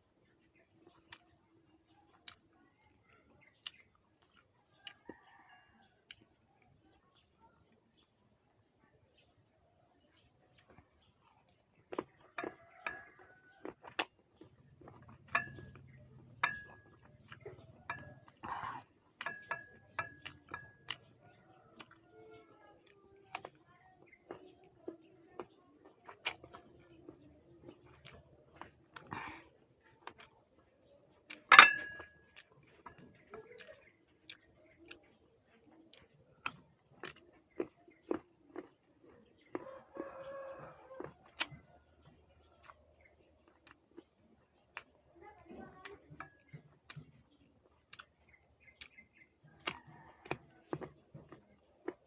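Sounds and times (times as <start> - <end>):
crunchy chewing: 0.0 - 8.2, 10.1 - 52.0
cutlery tapping on ceramic dish: 15.2 - 17.1, 19.2 - 21.0, 31.5 - 32.2.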